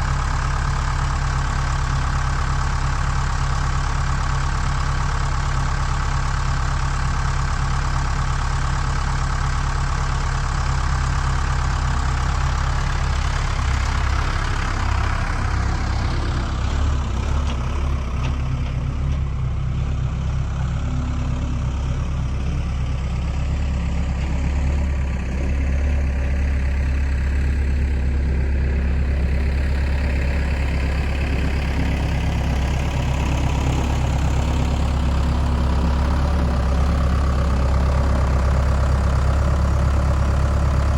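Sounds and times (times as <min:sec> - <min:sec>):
skid steer engine running: 0:00.0 - 0:40.9.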